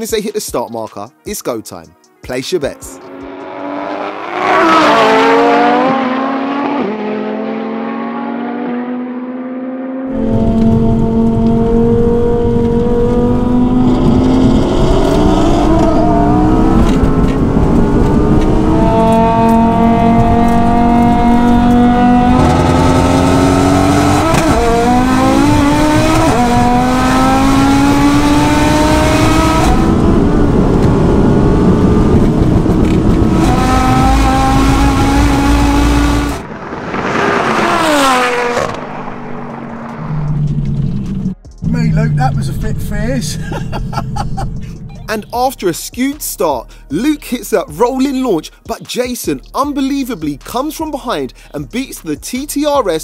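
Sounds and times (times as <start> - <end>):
race car engine accelerating: 2.8 - 45.3
car passing by: 35.0 - 41.2.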